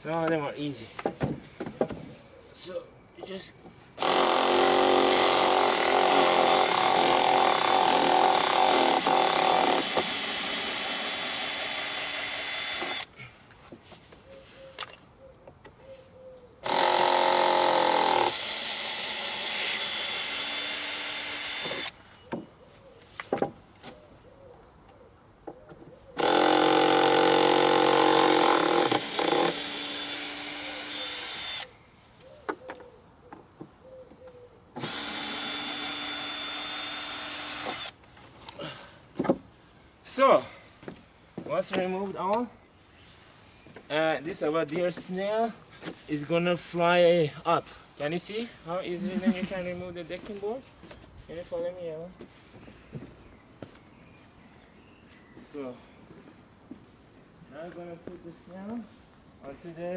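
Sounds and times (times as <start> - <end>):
cordless drill running in reverse: 4.0 - 13.1, 16.6 - 21.9, 26.2 - 31.7, 34.8 - 38.0.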